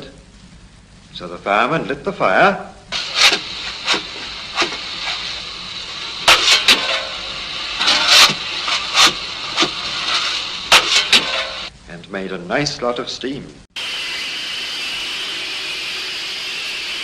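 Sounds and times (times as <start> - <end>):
steam hissing: 2.9 - 11.7, 13.8 - 17.0
short sharp bursts: 3.0 - 11.7.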